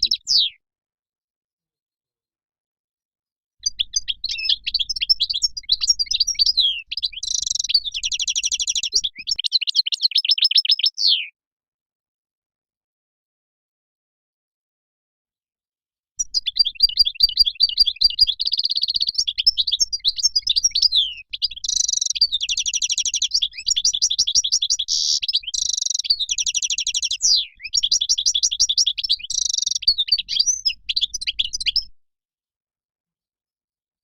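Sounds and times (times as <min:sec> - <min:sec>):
goldfinch twittering song: 0:00.0 - 0:00.6, 0:03.6 - 0:11.3, 0:16.2 - 0:31.9.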